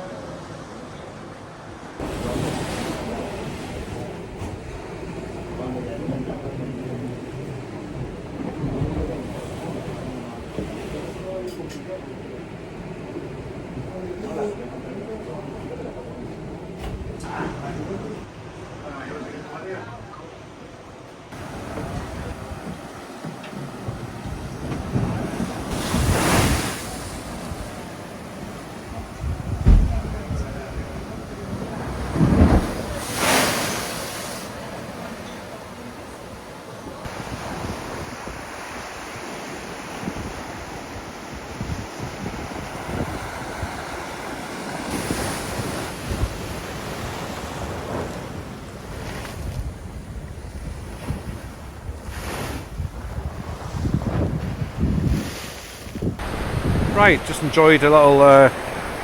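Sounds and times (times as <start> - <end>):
sea surf washing: 0.0 - 19.7, 21.3 - 59.0
wind buffeting microphone: 21.4 - 33.0, 39.9 - 59.0.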